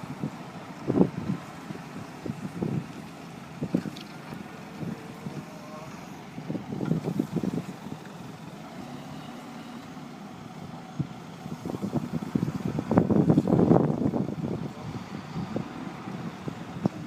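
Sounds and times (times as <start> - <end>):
heavy vehicle engine running: 0.0 - 17.0.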